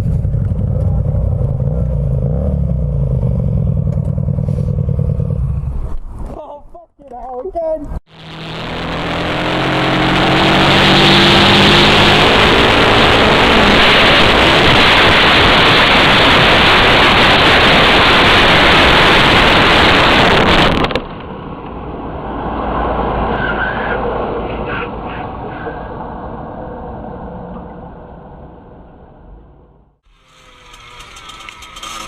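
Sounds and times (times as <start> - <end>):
motorcycle riding at speed: 0.0 - 6.3, 8.1 - 32.0
quieter vehicle sound: 0.0 - 14.2, 21.0 - 32.0.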